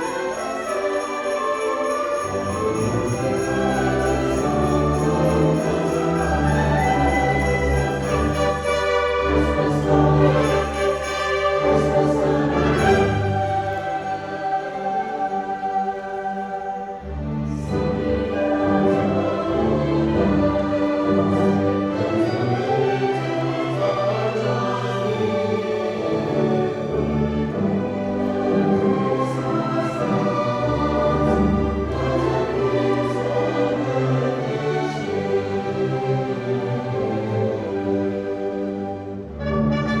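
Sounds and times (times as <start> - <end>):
string orchestra playing: 0.0 - 40.0.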